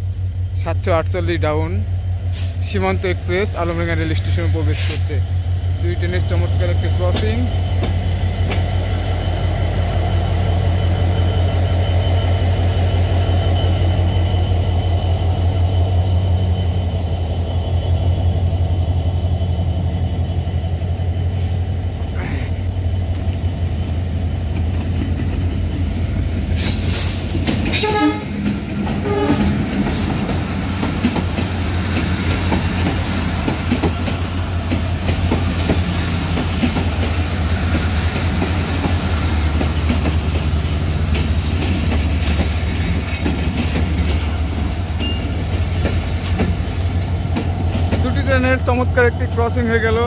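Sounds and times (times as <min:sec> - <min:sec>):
locomotive engine drone: 0:00.0 - 0:50.0
wheels clattering over rail joints: 0:26.8 - 0:44.4, 0:45.0 - 0:48.3
train horn: 0:27.7 - 0:29.6.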